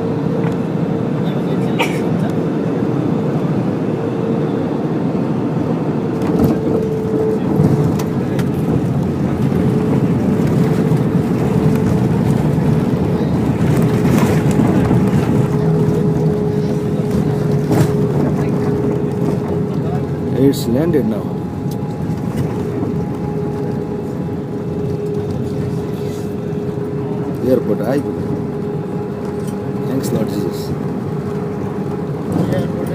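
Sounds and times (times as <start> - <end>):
jet engines and rushing air: 0.0 - 32.9
steady cabin hum: 0.0 - 32.9.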